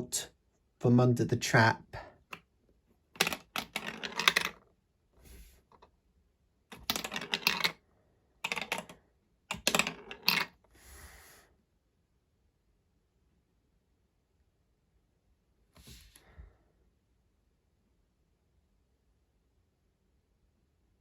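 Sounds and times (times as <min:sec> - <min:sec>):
marbles and plastic pieces clicking: 0:03.1 - 0:04.6, 0:06.7 - 0:07.8, 0:08.4 - 0:10.6.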